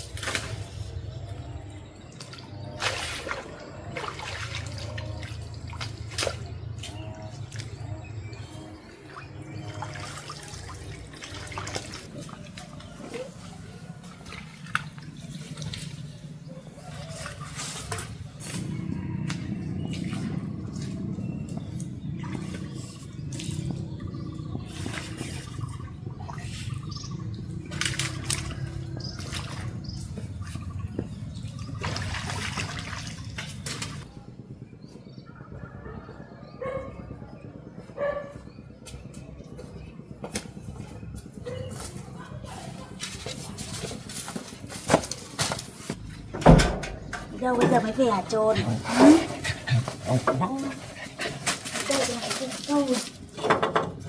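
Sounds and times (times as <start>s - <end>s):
water splashing and dripping: 2.0s - 18.6s, 19.2s - 34.1s
water rushing and splashing: 31.5s - 34.1s.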